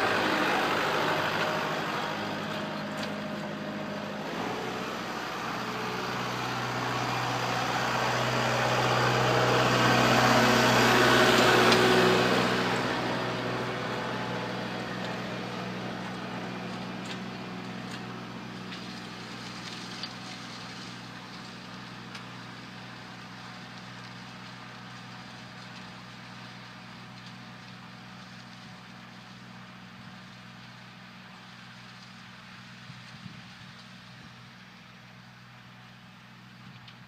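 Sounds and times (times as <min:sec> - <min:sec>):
diesel tractor engine running: 0:00.0 - 0:37.0.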